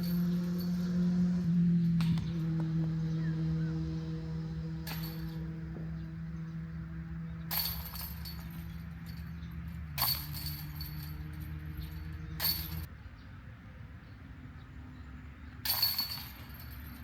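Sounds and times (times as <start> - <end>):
chains jangling from discs: 0.0 - 1.2, 4.8 - 5.6, 7.5 - 12.9, 15.6 - 17.0
steady low hum: 0.0 - 12.9.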